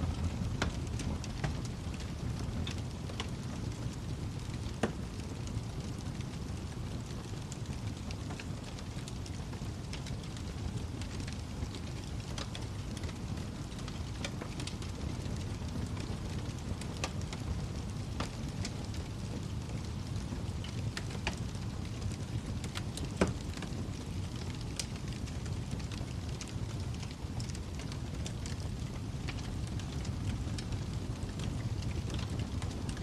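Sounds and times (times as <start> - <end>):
fire crackles and pops: 0.0 - 33.0
flames rumbling: 0.0 - 33.0.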